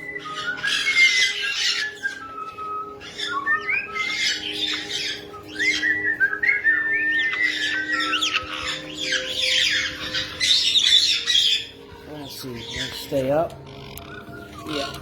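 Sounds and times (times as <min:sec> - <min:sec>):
parrot whistling gliding notes: 0:00.0 - 0:11.9, 0:12.6 - 0:15.0
parrot squawking: 0:00.0 - 0:12.0, 0:12.6 - 0:15.0.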